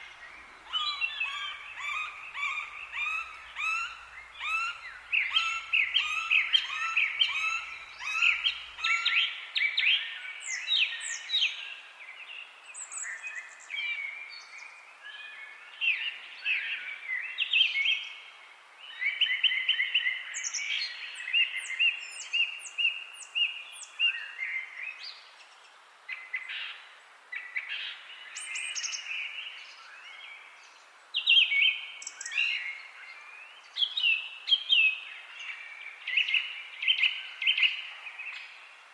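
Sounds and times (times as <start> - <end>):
songbirds chirping and singing: 0.0 - 11.6.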